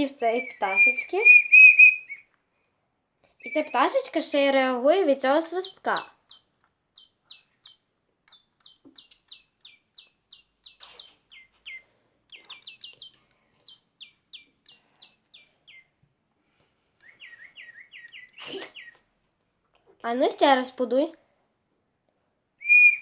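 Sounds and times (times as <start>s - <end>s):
electronic toy bird chirping: 0.2s - 2.2s, 6.0s - 14.5s, 22.6s - 23.0s
whistle: 0.4s - 2.3s, 22.6s - 23.0s.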